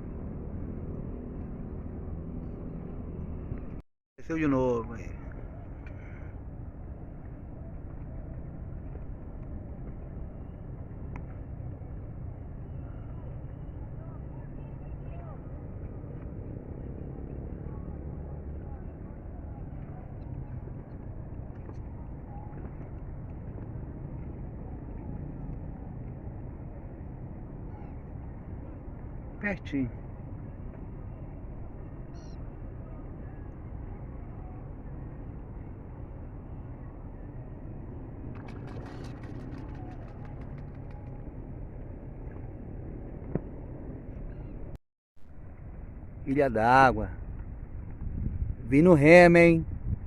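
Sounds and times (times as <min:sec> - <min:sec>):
wind rumble: 0:00.0 - 0:50.0
wind on microphone: 0:47.0 - 0:50.0.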